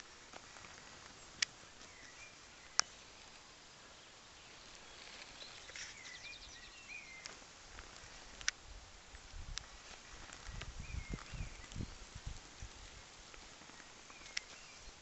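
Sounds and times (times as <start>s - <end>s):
birds chirping faintly: 0.0s - 15.0s
sharp clicks: 8.4s - 8.6s.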